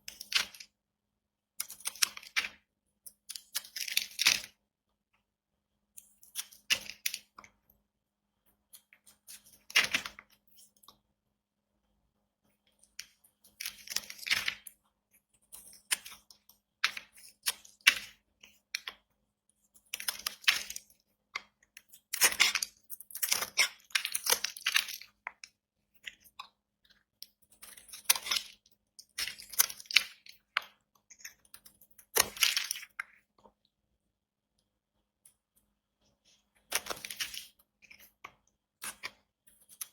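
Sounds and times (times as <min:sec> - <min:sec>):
knife crunching through soap: 0:21.9 - 0:25.1.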